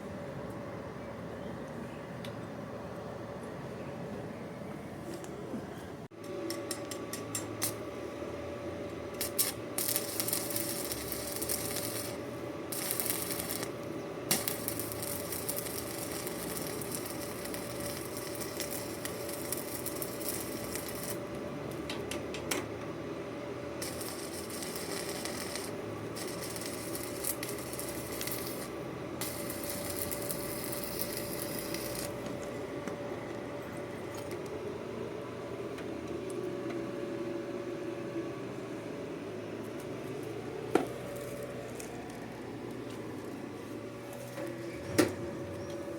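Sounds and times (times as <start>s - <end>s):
steady hum: 0.0s - 45.9s
arc welding crackling hiss: 6.9s - 7.9s, 9.1s - 22.1s, 23.8s - 32.6s, 40.8s - 43.4s.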